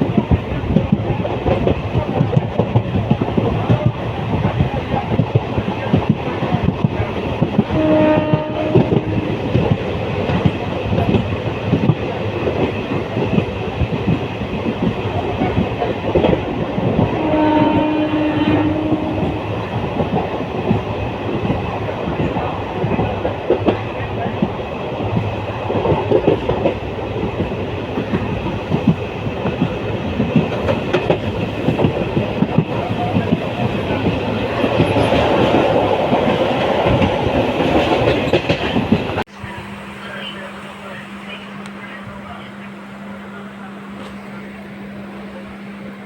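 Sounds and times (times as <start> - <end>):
train wheels clattering on rails: 0.0 - 39.3
train horn blasts: 7.7 - 9.7, 17.0 - 19.8.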